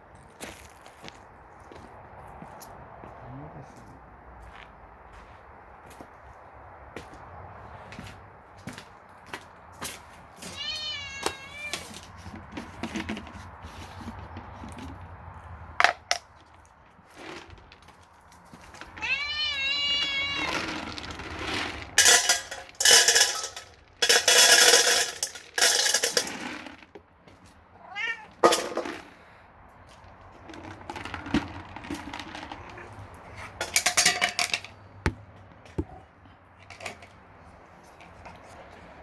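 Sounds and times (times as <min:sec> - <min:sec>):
cat meowing: 0:10.4 - 0:12.0, 0:19.0 - 0:20.7, 0:27.8 - 0:28.4.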